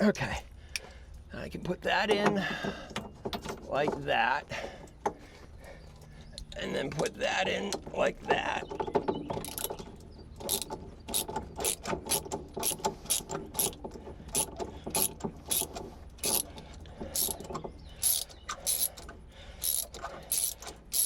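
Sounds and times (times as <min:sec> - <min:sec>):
socket ratchet clicking: 0:09.4 - 0:09.8, 0:10.4 - 0:13.8, 0:14.4 - 0:16.5, 0:17.1 - 0:17.4, 0:18.0 - 0:21.0.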